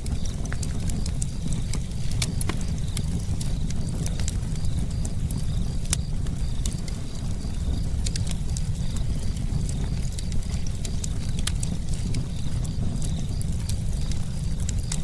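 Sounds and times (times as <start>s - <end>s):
campfire burning: 0.0s - 15.0s.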